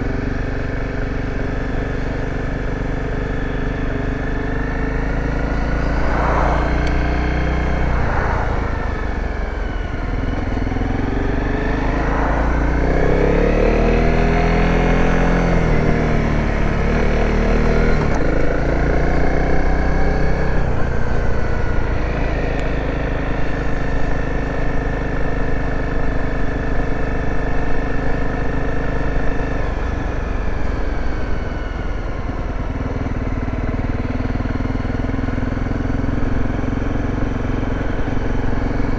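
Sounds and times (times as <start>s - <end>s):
dirt bike engine: 0.0s - 24.9s
low wind rumble: 3.0s - 17.1s.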